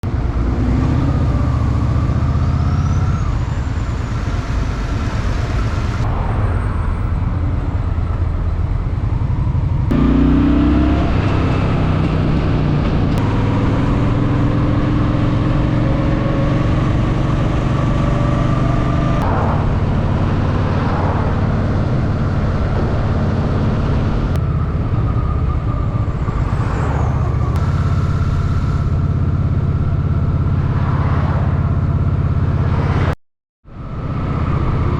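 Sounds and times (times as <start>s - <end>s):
traffic noise: 0.0s - 34.9s
motorcycle engine running: 8.4s - 18.2s, 27.3s - 32.7s.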